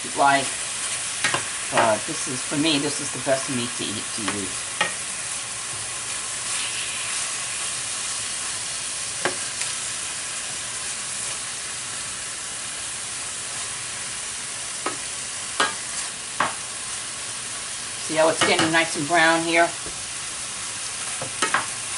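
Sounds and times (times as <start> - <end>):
meat sizzling in a pan: 0.0 - 21.9.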